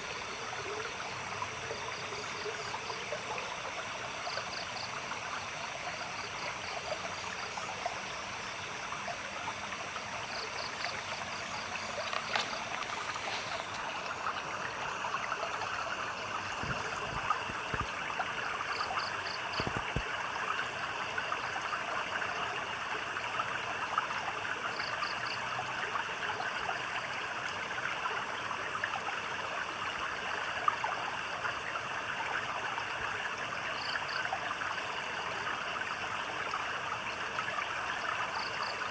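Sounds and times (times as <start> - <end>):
trickling splashing water: 9.1 - 20.1.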